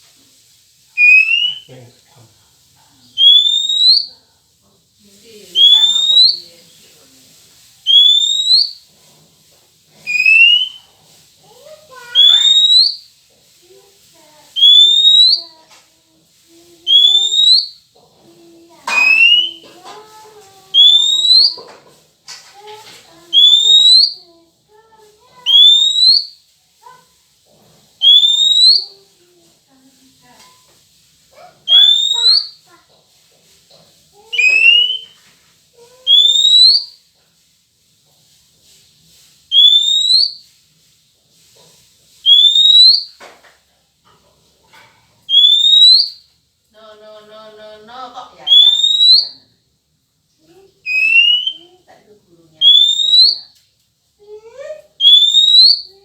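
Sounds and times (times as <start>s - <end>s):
lower sliding bird calls: 1.0s - 1.7s, 3.2s - 4.1s, 5.6s - 6.5s, 7.8s - 8.8s, 10.0s - 10.9s, 12.0s - 13.1s, 14.6s - 15.5s, 16.9s - 17.8s, 18.9s - 19.6s, 20.8s - 21.6s, 23.3s - 24.2s, 25.5s - 26.4s, 28.0s - 28.9s, 31.7s - 32.6s, 34.3s - 35.2s, 36.1s - 37.0s, 39.5s - 40.4s, 42.2s - 43.1s, 45.3s - 46.2s, 48.5s - 49.3s, 50.8s - 51.6s, 52.6s - 53.4s, 55.0s - 55.9s
rising whistled note: 1.0s - 1.7s, 10.1s - 10.8s.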